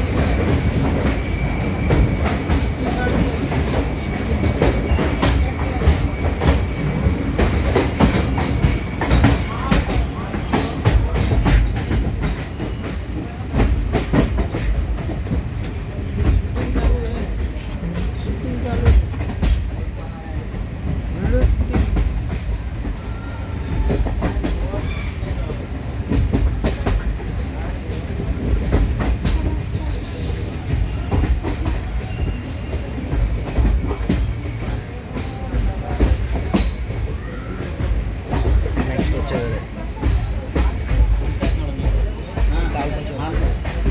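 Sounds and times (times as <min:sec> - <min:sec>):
wheels clacking over rail joints: 0:00.0 - 0:23.0
train rumble inside coach: 0:00.0 - 0:43.9.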